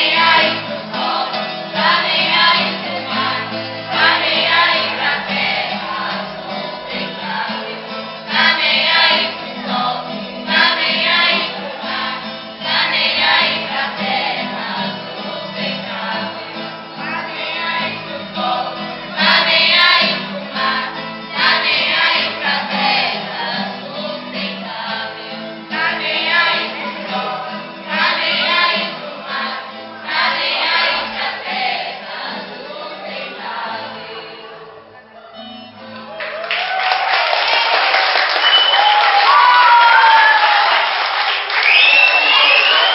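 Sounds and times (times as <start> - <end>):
choir singing with accompaniment: 0.0 - 35.0.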